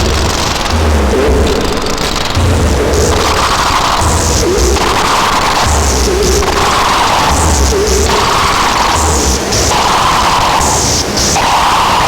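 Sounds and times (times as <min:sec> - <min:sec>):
noisy looping synthesizer pattern: 0:00.0 - 0:11.8.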